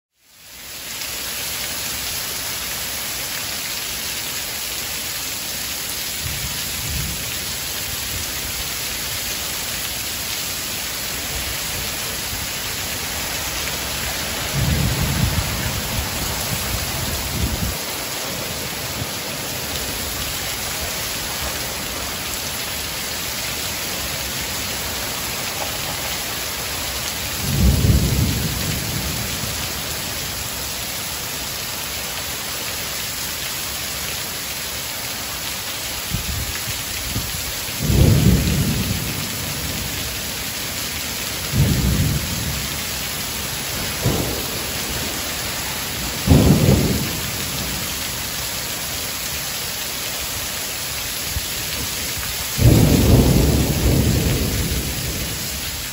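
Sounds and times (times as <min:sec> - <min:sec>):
heavy rain pouring: 0:00.1 - 0:55.9
high wind: 0:12.2 - 0:25.4
deep rumbles of thunder: 0:14.2 - 0:17.8, 0:27.0 - 0:29.6, 0:37.8 - 0:40.0, 0:41.4 - 0:42.7, 0:43.8 - 0:47.8, 0:52.5 - 0:55.4.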